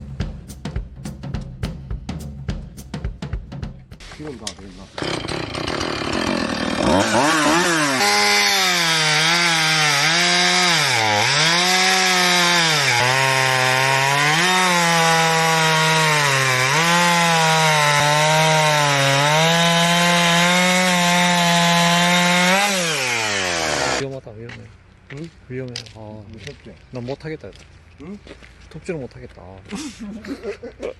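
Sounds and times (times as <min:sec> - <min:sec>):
chainsaw cutting wood: 0:04.7 - 0:24.0.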